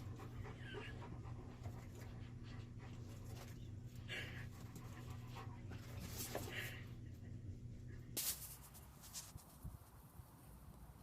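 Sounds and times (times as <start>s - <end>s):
dog panting: 0.0s - 6.9s
steady low hum: 0.0s - 11.0s.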